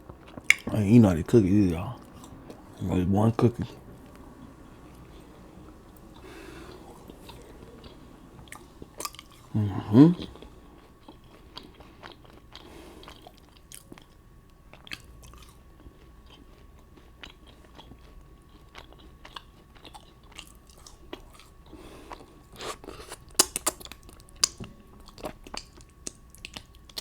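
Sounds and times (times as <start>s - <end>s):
chewing and biting food: 0.0s - 27.0s
wet mouth clicks: 0.4s - 0.7s.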